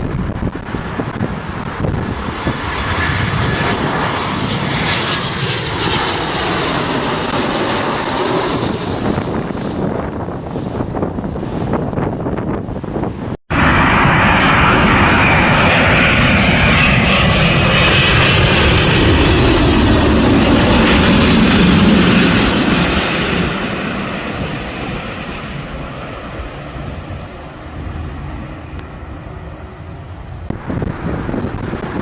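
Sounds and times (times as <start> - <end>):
airplane engine passing: 0.0 - 32.0.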